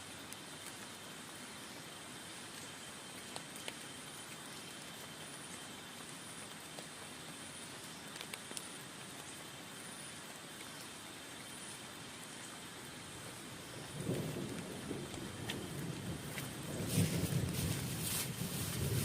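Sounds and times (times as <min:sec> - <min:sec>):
heavy rain on a tent: 0:00.0 - 0:19.0
raindrops ticking: 0:02.4 - 0:10.9, 0:12.4 - 0:19.0
thunder rumbling: 0:13.7 - 0:19.0.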